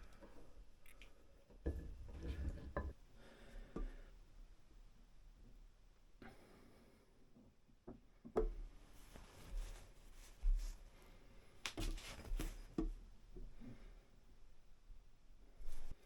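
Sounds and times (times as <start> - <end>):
soft rustling: 8.8 - 12.8, 15.6 - 16.0.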